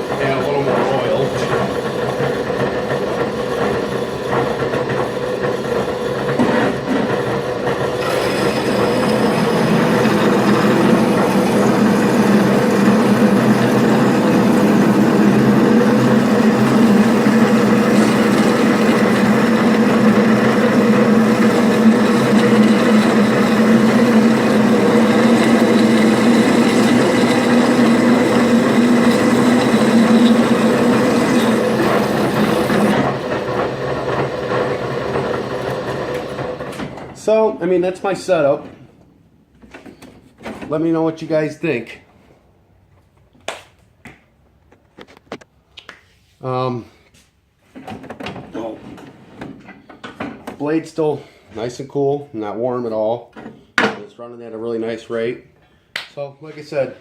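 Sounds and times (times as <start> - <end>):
bandsaw cutting steel: 0.0 - 36.8.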